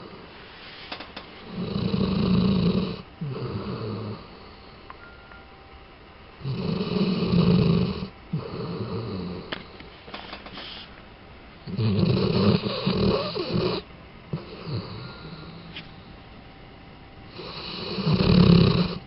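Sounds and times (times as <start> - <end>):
dog snoring: 1.4 - 4.8, 6.4 - 9.7, 11.6 - 15.8, 17.3 - 19.0
dog soft breath: 10.5 - 11.0.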